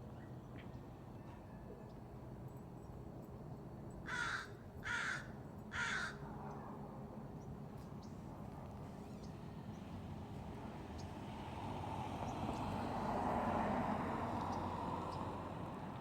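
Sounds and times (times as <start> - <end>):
crow cawing: 4.1 - 6.2.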